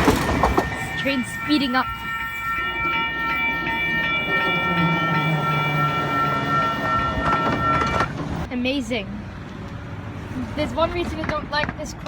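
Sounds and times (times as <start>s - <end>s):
electronic crossing bells ringing: 0.0s - 8.1s
train rumbling and humming: 0.0s - 8.6s.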